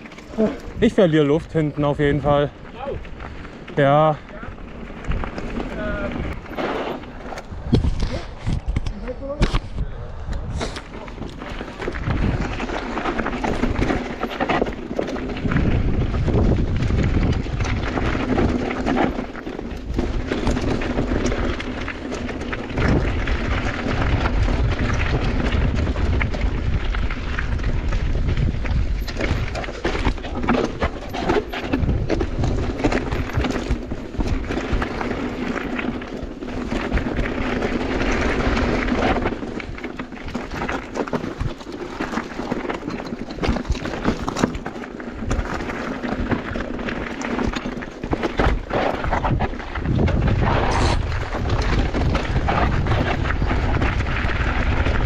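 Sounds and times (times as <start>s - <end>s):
bike rattling over bumps: 0.0s - 55.0s
bike tyres on gravel: 0.0s - 55.0s.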